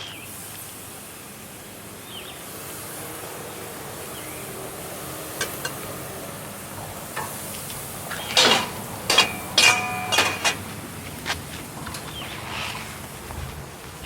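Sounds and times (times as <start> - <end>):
metal grilling tools clinking: 7.0 - 12.9.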